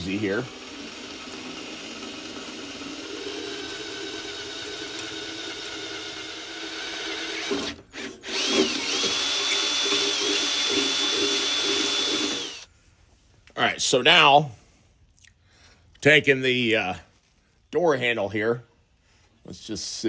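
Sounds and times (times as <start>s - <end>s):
power drill whining: 0.0s - 12.7s.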